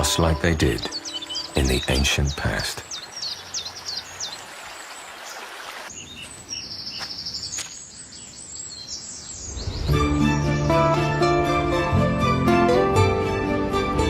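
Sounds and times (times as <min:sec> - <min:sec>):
bird trill: 0:00.0 - 0:10.7
birds chirping: 0:00.0 - 0:10.9.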